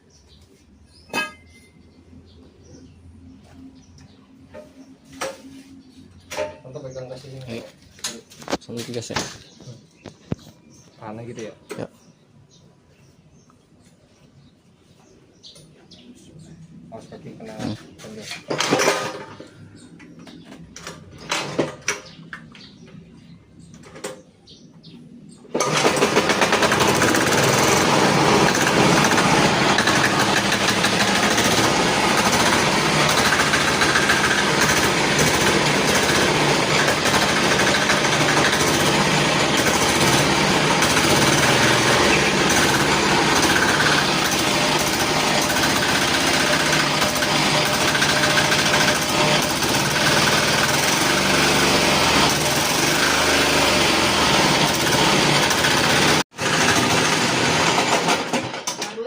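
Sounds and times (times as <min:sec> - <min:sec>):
motorcycle diesel engine running: 0:25.6 - 0:58.5.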